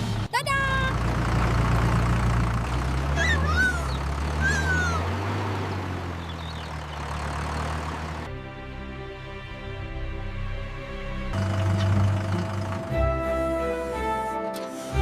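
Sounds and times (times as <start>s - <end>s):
tractor engine droning: 0.0s - 8.6s, 10.2s - 15.0s
high animal calls: 3.1s - 5.2s
music: 8.3s - 15.0s.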